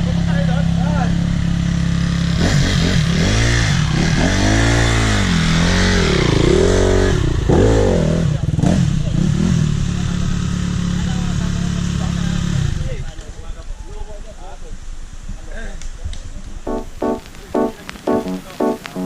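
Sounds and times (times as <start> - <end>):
motorcycle engine revving and idling: 0.0 - 13.1.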